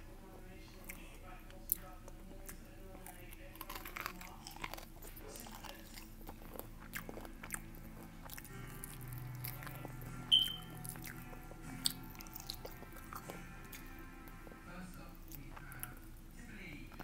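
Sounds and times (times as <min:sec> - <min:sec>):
person chewing crunchy food: 0:00.8 - 0:16.3
mouth clicks: 0:10.3 - 0:10.8.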